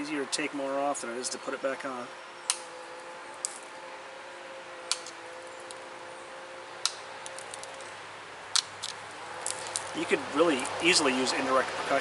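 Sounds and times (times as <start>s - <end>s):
stone flakes clicking off: 6.8s - 7.9s, 8.6s - 10.0s.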